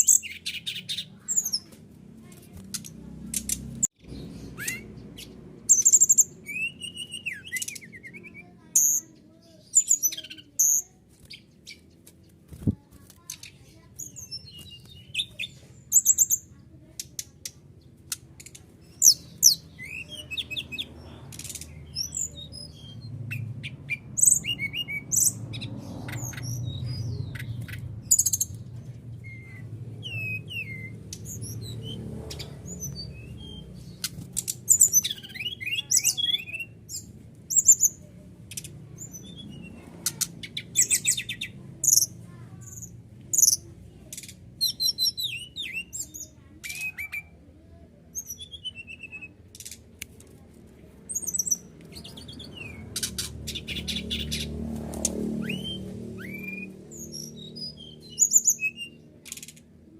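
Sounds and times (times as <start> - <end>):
songbird chirping: 0.0 - 59.9.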